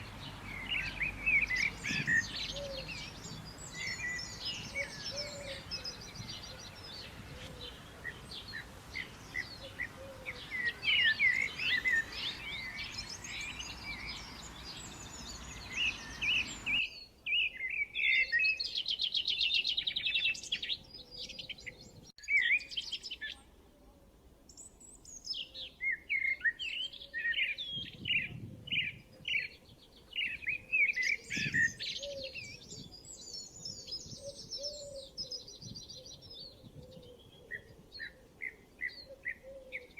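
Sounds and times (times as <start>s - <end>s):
background hiss: 0.0s - 17.2s
birds chirping and trilling: 0.0s - 23.4s, 24.5s - 39.9s.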